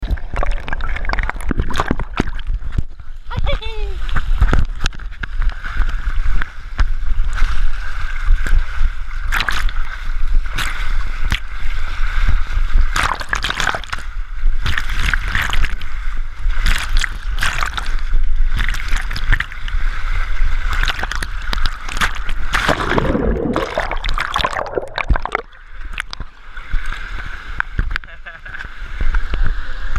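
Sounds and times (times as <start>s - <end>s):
splashes and bumps: 0.0s - 7.7s, 8.3s - 11.8s, 12.8s - 26.9s
water rushing down a slide: 14.8s - 28.0s.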